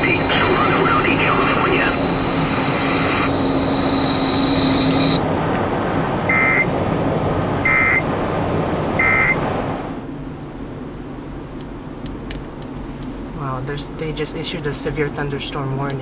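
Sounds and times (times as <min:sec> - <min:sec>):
buzzy data bursts: 0:00.0 - 0:05.2
radio static hiss: 0:00.0 - 0:05.2
weather radio broadcast: 0:00.0 - 0:05.2.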